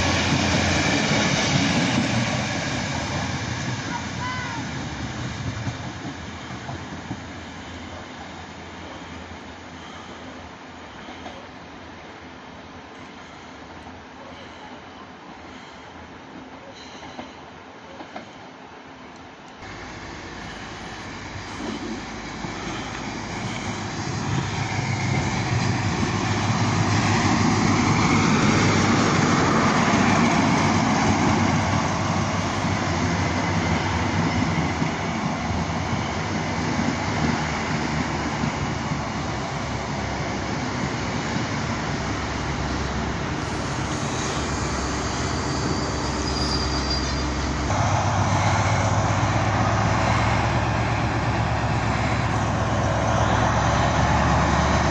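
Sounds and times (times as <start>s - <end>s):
train rumble: 0.0s - 54.9s
diesel engine: 19.6s - 54.9s.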